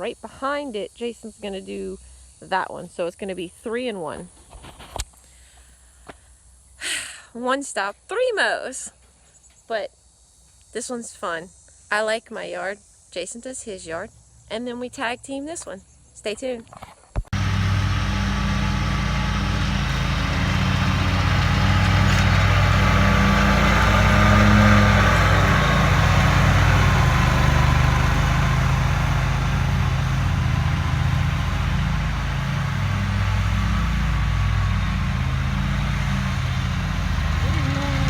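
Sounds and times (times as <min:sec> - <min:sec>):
riding lawn mower engine: 0:17.4 - 0:38.0.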